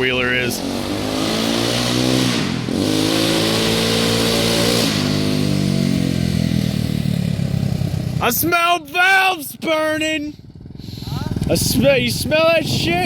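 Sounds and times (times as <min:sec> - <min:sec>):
loud engine revving: 0:00.0 - 0:08.2.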